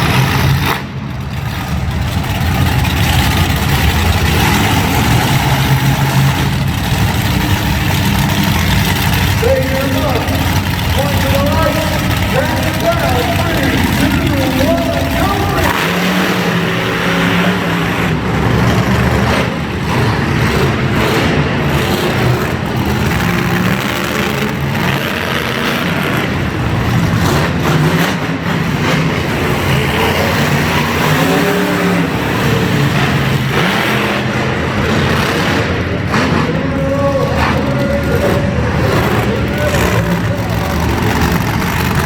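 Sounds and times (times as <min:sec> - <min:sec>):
monster truck engine revving: 0:00.0 - 0:42.0.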